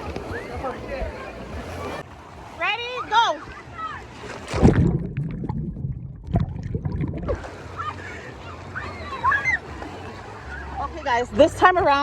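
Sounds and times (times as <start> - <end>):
muffled underwater sloshing: 0.0 - 12.0
open-air water noise: 0.0 - 12.0
splash into water: 4.0 - 8.1
knock underwater: 4.5 - 7.4.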